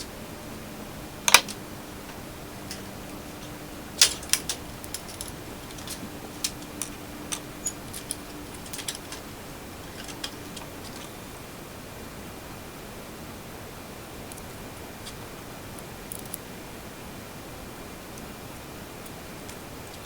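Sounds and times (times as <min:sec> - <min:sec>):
faint steady hum: 0:00.0 - 0:20.0
small metal parts clicking: 0:01.2 - 0:11.2, 0:16.1 - 0:16.4.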